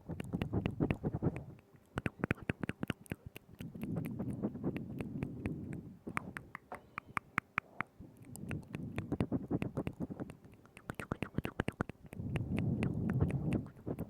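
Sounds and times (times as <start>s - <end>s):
wet tongue and lip clicks: 0.0s - 14.0s
soft low rumble: 3.6s - 6.4s, 12.1s - 14.0s.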